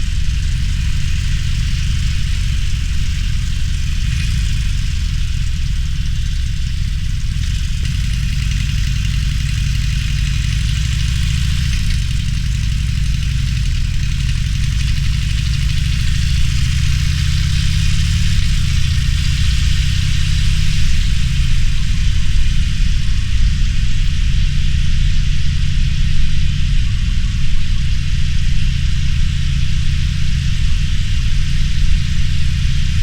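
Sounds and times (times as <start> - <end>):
motorcycle engine idling: 0.0 - 33.0.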